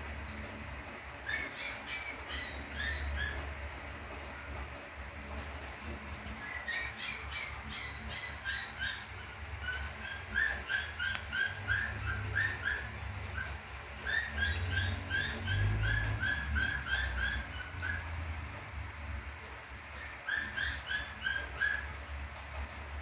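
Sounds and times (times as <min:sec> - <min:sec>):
small bird chirping: 0:06.4 - 0:18.1.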